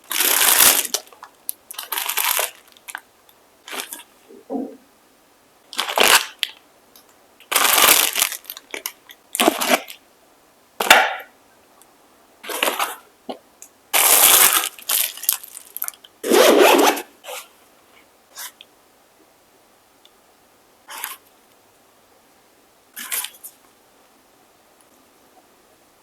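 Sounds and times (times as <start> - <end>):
packaging rustling and crinkling: 0.0 - 3.0, 3.6 - 4.1, 5.7 - 6.5, 7.5 - 10.0, 12.4 - 13.1, 14.0 - 16.0.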